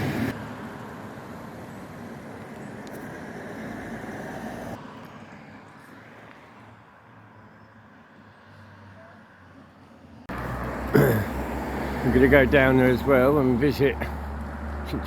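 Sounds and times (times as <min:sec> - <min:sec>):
car passing by: 0:00.0 - 0:00.8, 0:02.8 - 0:06.7, 0:08.2 - 0:15.0.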